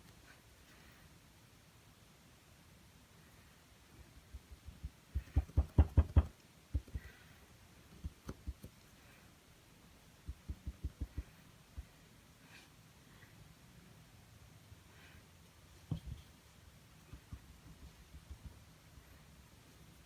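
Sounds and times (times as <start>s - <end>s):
paintbrush tapping on canvas: 4.3s - 7.1s, 10.3s - 11.9s, 15.9s - 16.3s, 17.0s - 18.7s.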